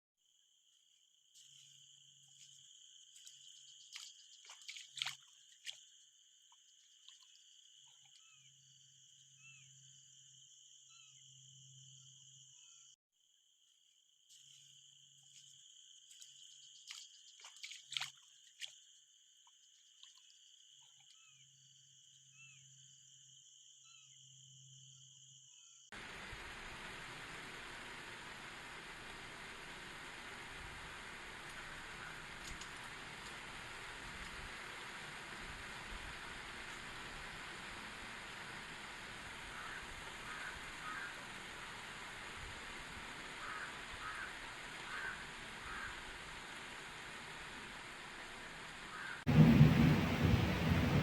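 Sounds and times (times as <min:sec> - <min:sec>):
frogs croaking: 0:01.4 - 0:13.0, 0:14.3 - 0:25.9, 0:30.0 - 0:34.0, 0:38.3 - 0:42.1, 0:43.1 - 0:46.6, 0:48.9 - 0:51.0
steady hiss: 0:26.0 - 0:51.0.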